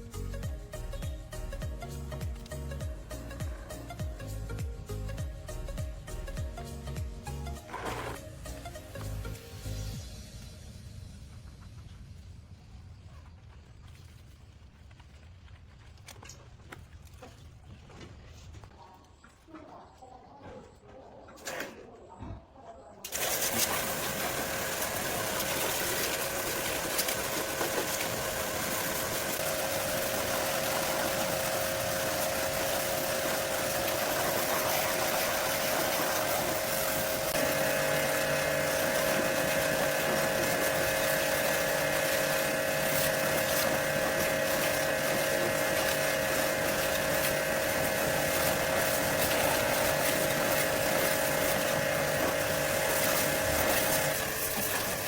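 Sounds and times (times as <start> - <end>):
motor humming: 23.1 - 55.0.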